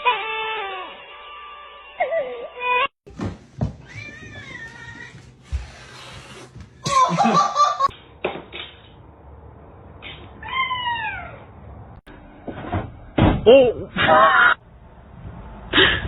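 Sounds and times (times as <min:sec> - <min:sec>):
cat meowing: 0:03.8 - 0:05.1.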